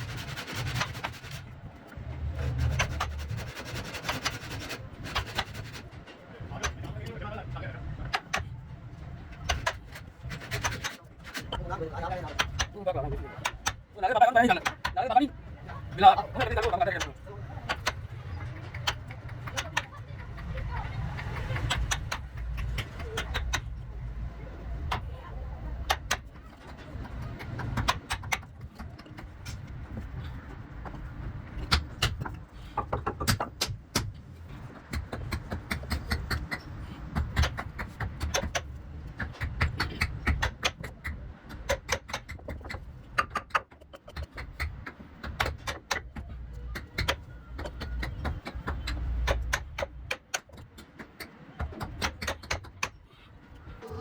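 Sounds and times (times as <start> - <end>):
steady low rumble: 4.6 - 32.8
hand tools knocking on wood: 31.6 - 34.2.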